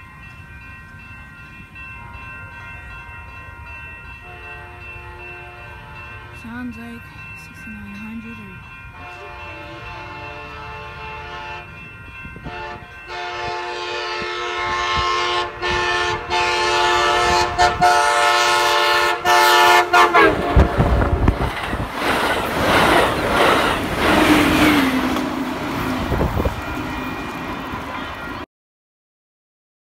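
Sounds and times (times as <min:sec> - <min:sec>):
train passing close by: 0:00.0 - 0:28.4
train horn blasts: 0:04.2 - 0:06.4, 0:09.0 - 0:11.8, 0:12.4 - 0:21.3.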